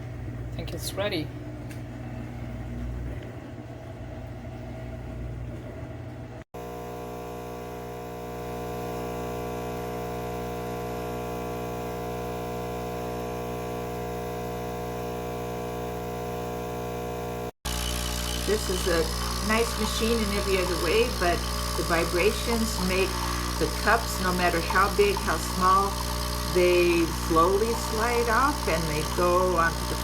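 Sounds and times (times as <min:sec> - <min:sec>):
espresso machine pump buzzing: 0:06.6 - 0:30.0.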